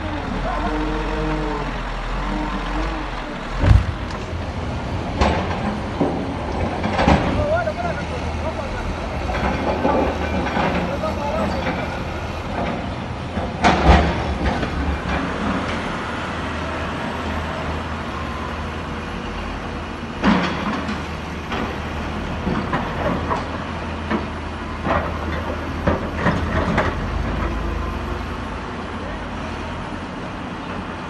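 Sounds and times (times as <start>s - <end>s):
heavy machinery engine rumble: 0.0s - 31.0s
loud metallic clanks and knocks: 3.5s - 7.9s, 9.2s - 16.0s, 20.2s - 27.7s.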